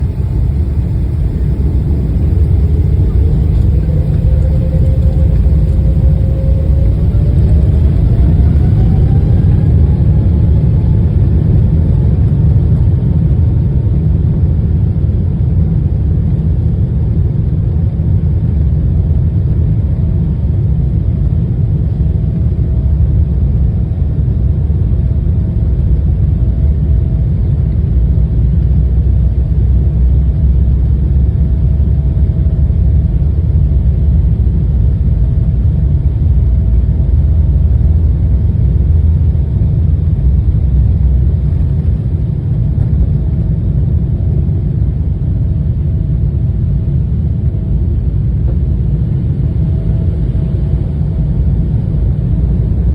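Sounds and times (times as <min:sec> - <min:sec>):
jet engines at takeoff: 0:00.0 - 0:52.9.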